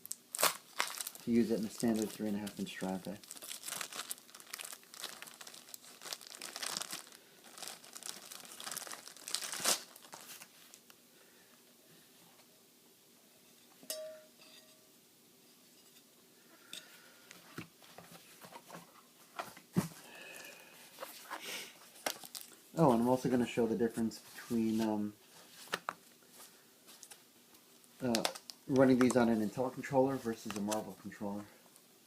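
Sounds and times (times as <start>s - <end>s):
packaging crinkling: 0.0s - 10.9s, 21.0s - 22.6s, 27.9s - 29.3s.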